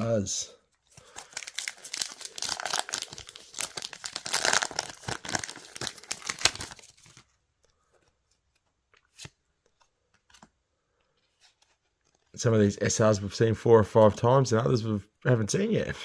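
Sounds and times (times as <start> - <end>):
wrapper tearing and crinkling: 1.0 - 7.2.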